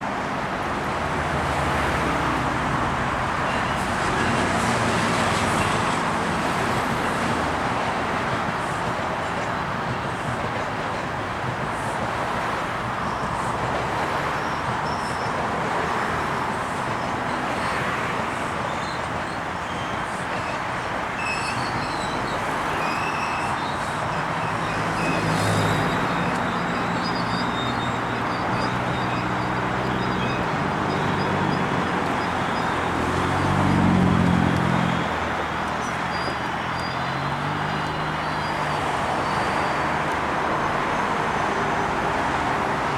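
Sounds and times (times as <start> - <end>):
diesel train rumbling: 0.0 - 42.9.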